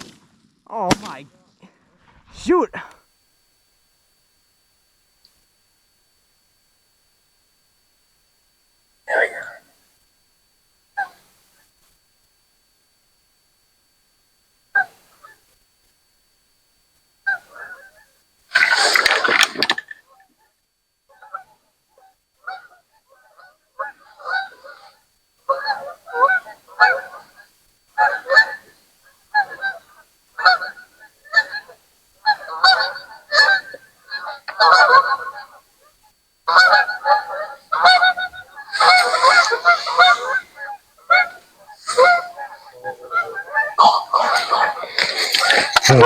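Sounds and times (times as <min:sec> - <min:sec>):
geese honking: 0:17.3 - 0:20.2, 0:21.1 - 0:46.0.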